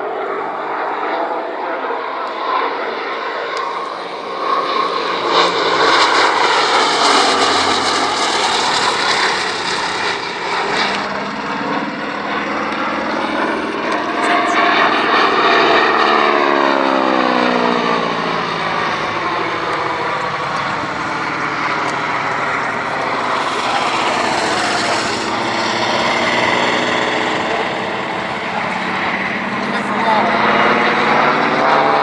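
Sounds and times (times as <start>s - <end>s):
aircraft engine roar passing: 0.0s - 32.0s.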